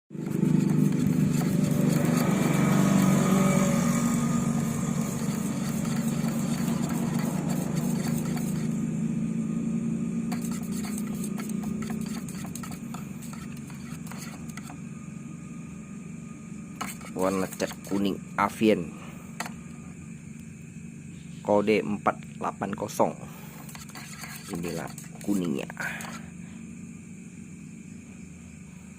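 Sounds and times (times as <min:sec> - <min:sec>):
motor humming: 0:00.1 - 0:21.2.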